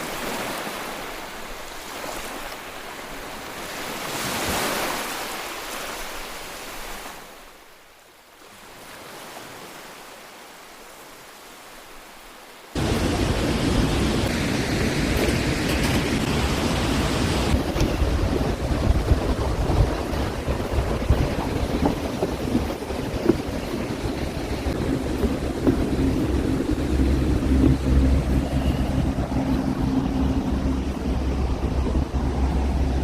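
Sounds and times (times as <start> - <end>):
waterfall rushing: 12.7 - 33.0.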